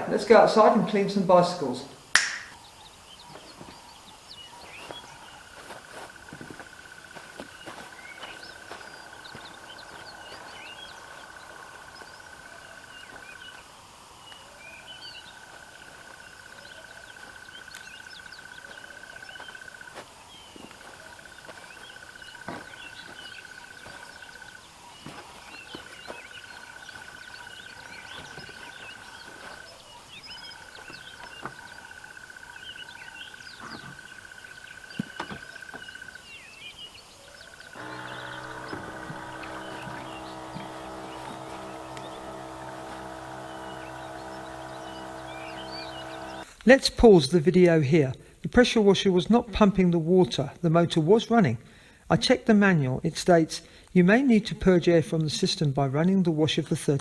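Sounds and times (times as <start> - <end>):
birds chirping: 0.0 - 57.0
pump motor whining: 37.7 - 46.5.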